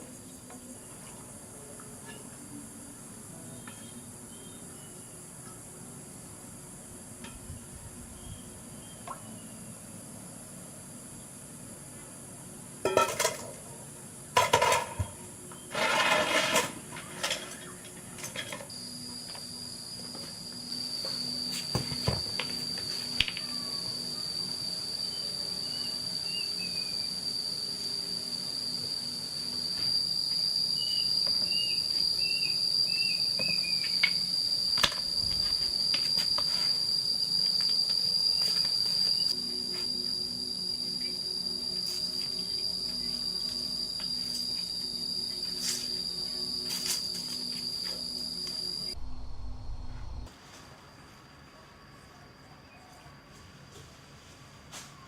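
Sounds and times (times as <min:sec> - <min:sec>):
high insect trill: 0:00.0 - 0:55.0
clattering and rubbing of objects: 0:15.7 - 0:18.7.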